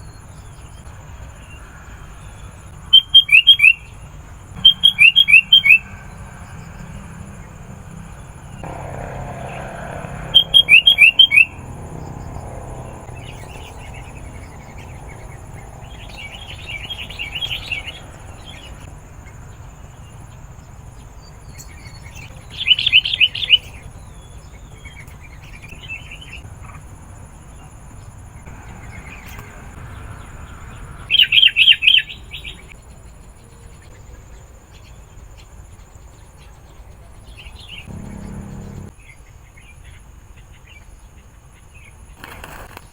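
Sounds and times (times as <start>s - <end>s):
bird chattering calls: 4.6s - 6.2s, 9.4s - 11.8s, 37.8s - 38.9s.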